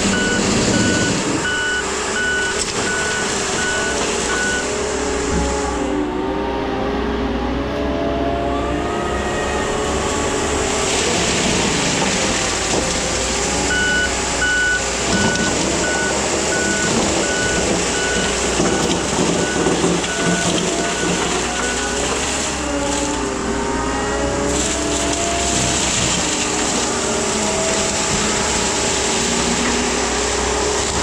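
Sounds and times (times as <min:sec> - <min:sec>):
skid steer engine under load: 0:00.0 - 0:31.0
backup alarm beeping: 0:00.1 - 0:04.8, 0:13.7 - 0:21.8.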